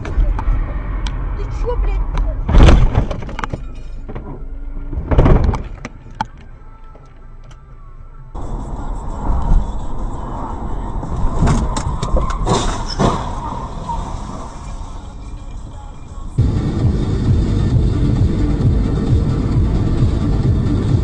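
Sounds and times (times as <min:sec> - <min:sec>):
road and engine rumble: 0:00.0 - 0:21.0
loud sudden thumps: 0:02.4 - 0:03.4, 0:04.9 - 0:05.9.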